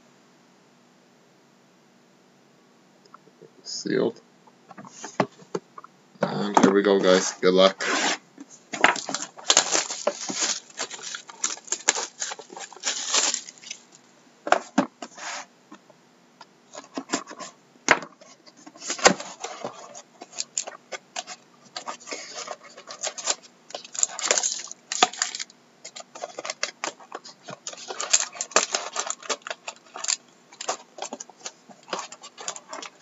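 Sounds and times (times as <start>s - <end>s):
plastic wrap tearing and crinkling: 8.8s - 14.0s, 20.2s - 33.0s.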